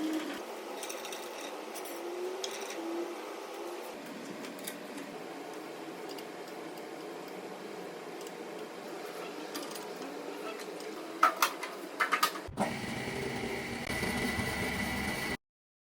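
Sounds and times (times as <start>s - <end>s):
bandsaw running: 12.5s - 15.4s.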